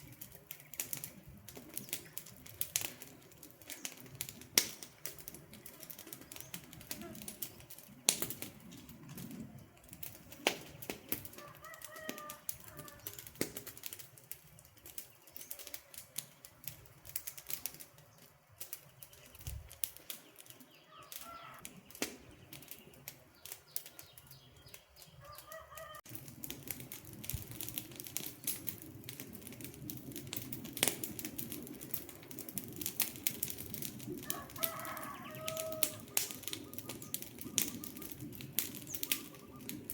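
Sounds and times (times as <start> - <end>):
campfire crackling and popping: 0.0 - 39.9
bird calling: 20.2 - 26.0, 34.6 - 39.9.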